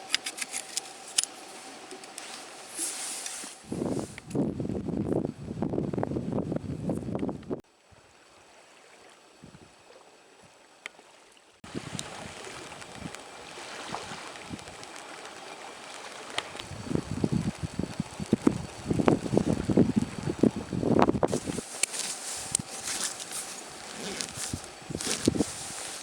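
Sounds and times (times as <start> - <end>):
wind: 0.0 - 26.0
water lapping: 8.0 - 26.0
steady hiss: 14.4 - 26.0.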